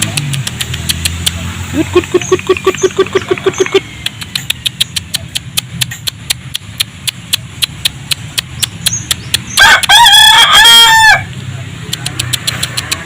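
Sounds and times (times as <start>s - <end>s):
rapid clicks: 0.0s - 9.9s, 11.9s - 13.0s
rooster crowing: 9.6s - 11.3s.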